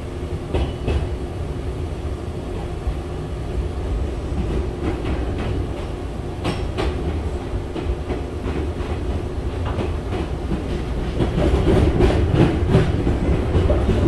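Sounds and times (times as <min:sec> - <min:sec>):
train running rumble: 0:00.0 - 0:14.0
wheels clacking over rail joints: 0:04.4 - 0:14.0.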